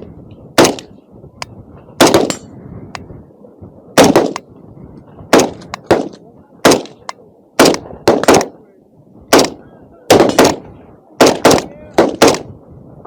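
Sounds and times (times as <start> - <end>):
distant gunshots: 0.6 - 0.9, 2.0 - 2.4, 4.0 - 4.4, 5.3 - 8.6, 9.3 - 10.6, 11.2 - 12.5
loud gunshots: 0.6 - 0.9, 2.0 - 2.4, 4.0 - 4.4, 5.3 - 8.6, 9.3 - 10.6, 11.2 - 12.5.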